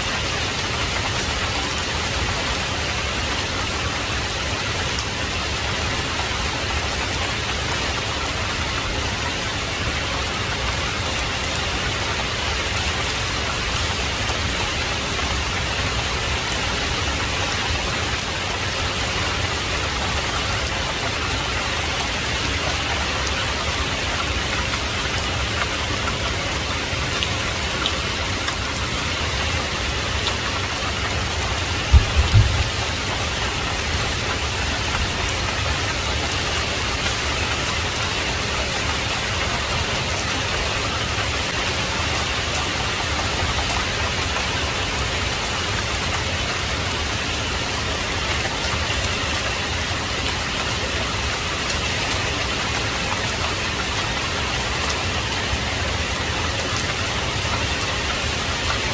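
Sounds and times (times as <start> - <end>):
heavy rain falling: 0.0 - 58.9
low thump: 31.9 - 32.8.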